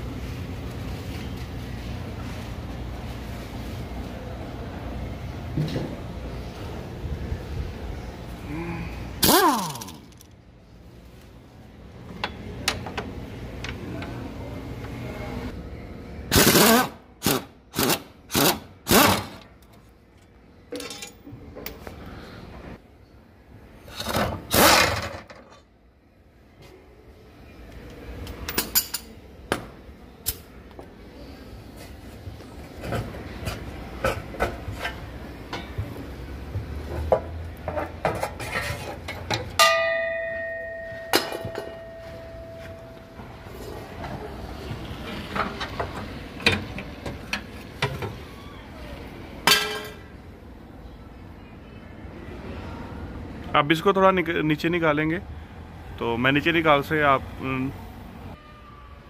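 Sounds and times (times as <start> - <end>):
metal tools clinking: 20.7 - 21.8
ringing metallic clang: 39.6 - 43.2.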